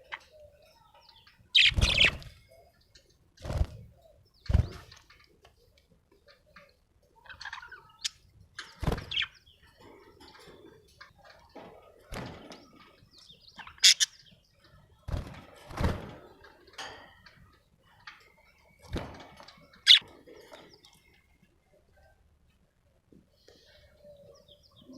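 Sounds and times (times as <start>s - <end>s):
budgerigar chirping: 13.7s - 14.2s.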